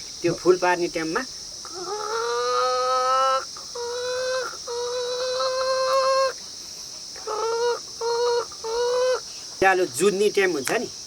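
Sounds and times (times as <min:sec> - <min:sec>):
crickets chirring: 0:00.0 - 0:11.0
man imitating hen cackle: 0:01.7 - 0:06.4, 0:07.2 - 0:09.2.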